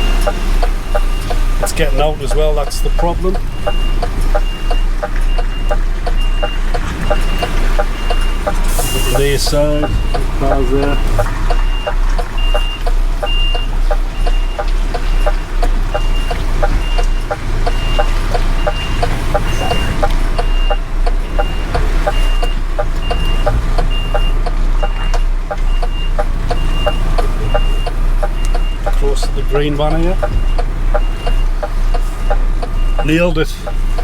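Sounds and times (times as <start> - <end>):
diesel engine running: 0.0 - 34.0
hazard light relay ticking: 0.0 - 34.0
reversing alarm beeps: 0.0 - 34.0.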